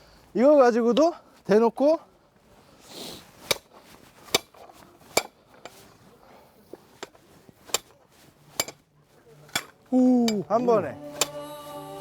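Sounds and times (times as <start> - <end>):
axe chopping firewood: 3.5 - 5.7, 8.6 - 8.8.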